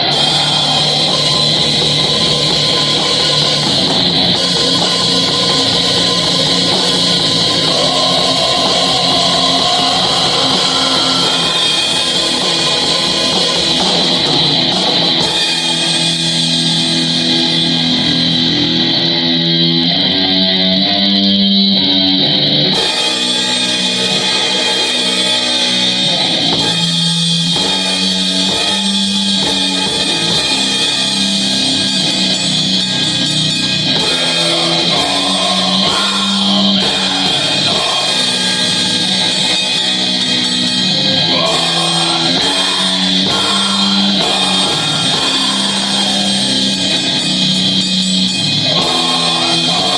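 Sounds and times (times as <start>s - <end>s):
cymbals hissing: 0.0s - 18.4s, 30.1s - 49.9s
distorted electric guitars: 0.0s - 49.9s
drum kit: 0.0s - 49.9s.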